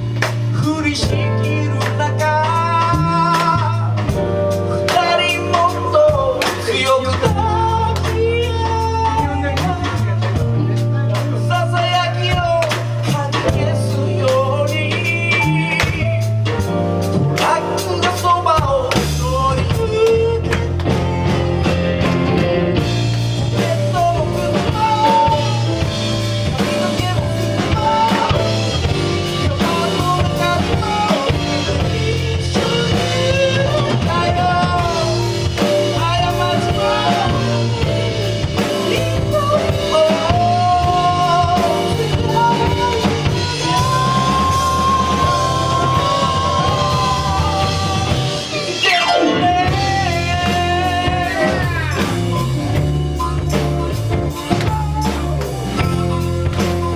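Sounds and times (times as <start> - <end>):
soul band playing: 0.0 - 56.9.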